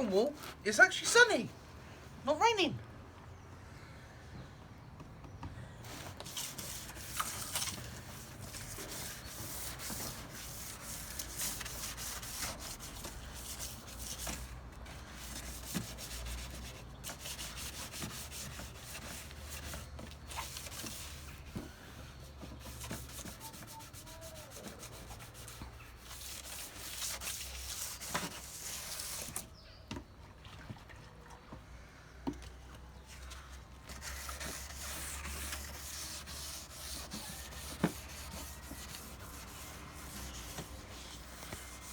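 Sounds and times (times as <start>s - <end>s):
sandpaper rubbing on bumper: 5.9s - 29.4s, 33.9s - 41.9s.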